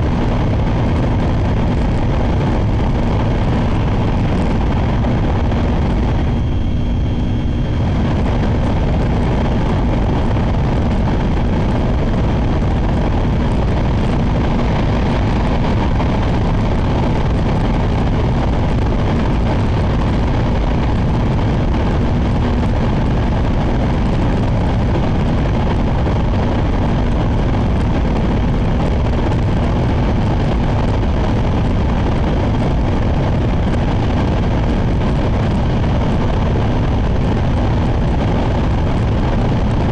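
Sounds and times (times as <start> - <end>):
train running at speed: 0.0 - 39.9.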